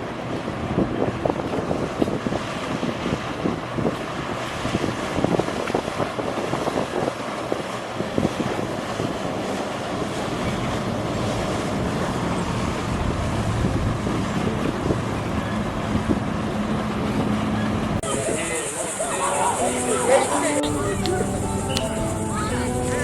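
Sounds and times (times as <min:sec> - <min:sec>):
wind buffeting microphone: 0:00.0 - 0:23.0
low steady hum: 0:19.7 - 0:23.0.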